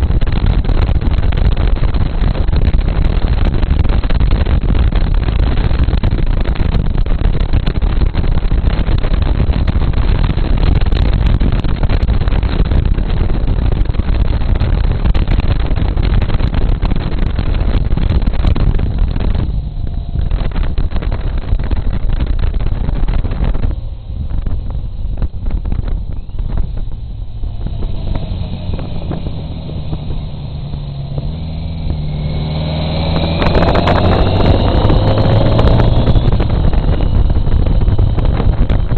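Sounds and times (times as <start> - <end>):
wind buffeting microphone: 0.0 - 38.9
engine rising in pitch: 26.2 - 38.9.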